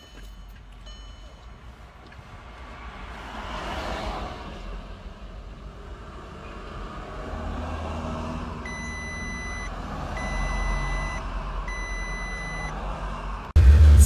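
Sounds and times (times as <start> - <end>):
reversing alarm beeping: 8.7 - 12.8.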